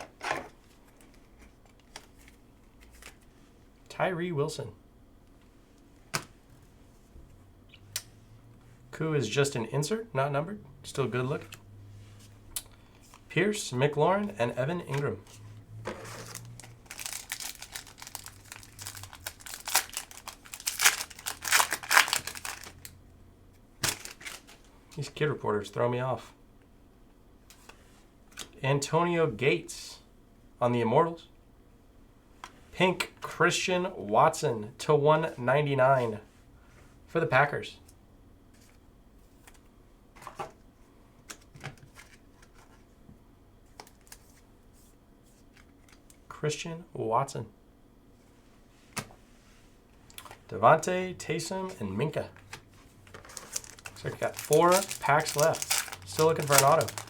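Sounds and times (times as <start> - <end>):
trading cards clicking and rustling: 16.0 - 22.9, 23.8 - 24.7, 52.4 - 57.0
foil wrapper crinkling: 16.2 - 22.9, 23.8 - 24.7, 53.0 - 57.0.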